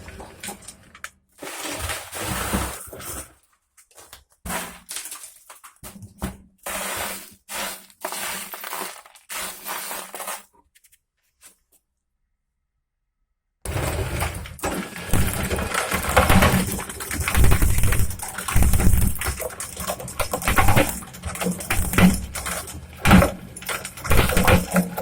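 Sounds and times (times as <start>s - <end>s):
shredder crushing glass: 6.7s - 10.4s, 13.7s - 25.0s.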